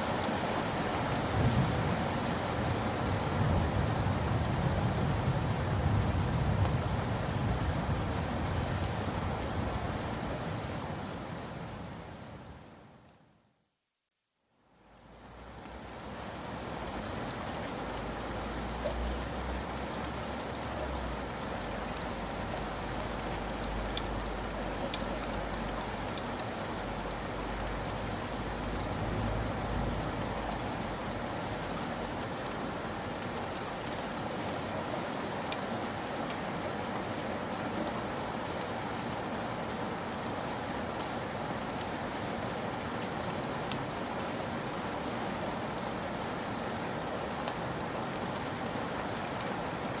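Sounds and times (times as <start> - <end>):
rain falling: 0.0 - 13.4, 14.6 - 50.0
raindrops ticking: 21.7 - 31.0.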